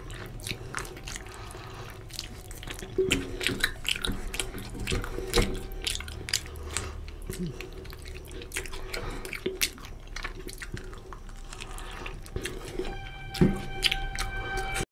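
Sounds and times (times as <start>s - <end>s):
music with held notes: 0.0s - 7.4s, 11.8s - 14.9s
wet chewing and lip smacks: 0.0s - 14.4s.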